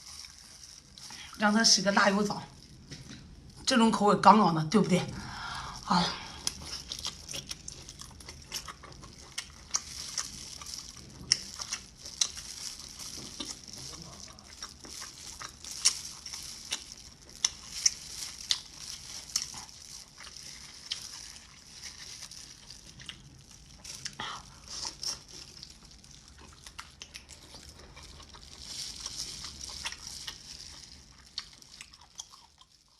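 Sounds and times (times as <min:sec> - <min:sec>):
wet chewing and slurping: 0:05.2 - 0:32.9.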